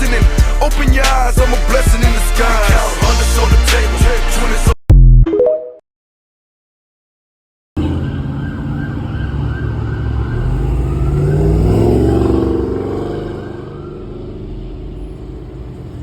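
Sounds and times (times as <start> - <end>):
siren yelping: 7.8 - 14.4
vehicle engines rumbling: 7.8 - 16.0.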